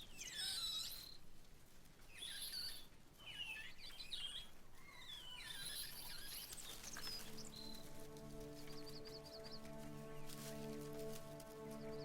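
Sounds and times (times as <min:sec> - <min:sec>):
baby monkey squealing: 0:00.2 - 0:01.2, 0:02.2 - 0:06.5
soft music with held notes: 0:06.5 - 0:12.0.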